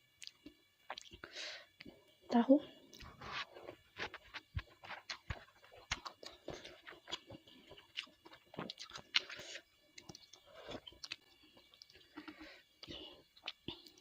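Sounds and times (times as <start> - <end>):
chewing with wet mouth clicks: 0.2 - 1.2, 4.6 - 14.0.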